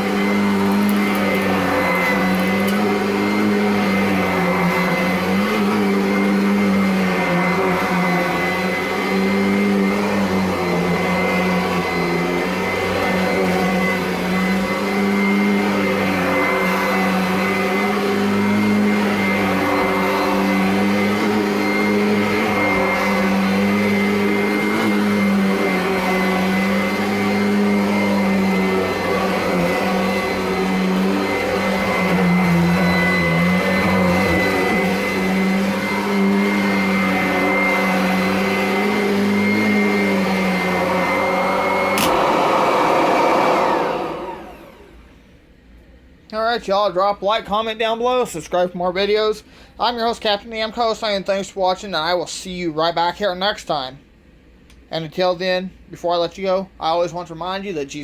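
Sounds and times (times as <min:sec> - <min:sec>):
vacuum cleaner running: 0:00.0 - 0:45.4.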